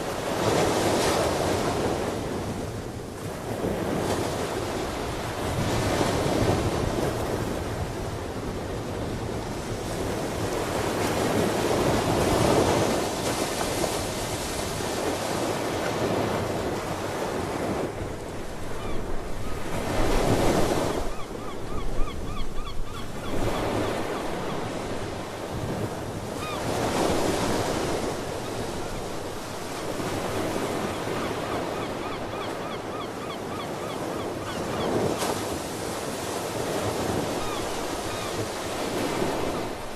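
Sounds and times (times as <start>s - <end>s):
sea birds calling: 18.7s - 19.9s, 20.6s - 24.9s, 30.5s - 35.2s, 37.1s - 39.6s.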